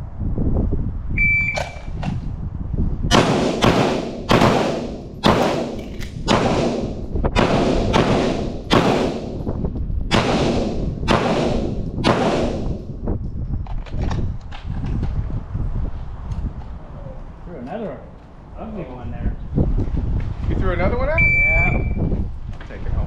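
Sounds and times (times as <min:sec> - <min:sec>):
shot timer beep: 0:01.2 - 0:01.8, 0:21.2 - 0:22.0
pistol shots: 0:03.1 - 0:09.4, 0:10.1 - 0:12.8.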